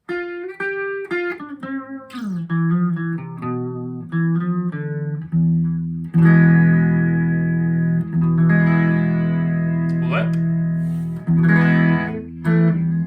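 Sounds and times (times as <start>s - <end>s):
electric guitar with chorus effect: 0.0s - 13.0s.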